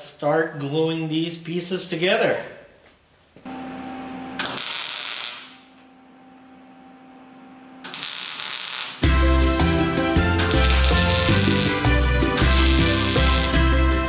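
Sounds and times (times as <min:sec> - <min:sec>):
background music: 0:09.0 - 0:14.0.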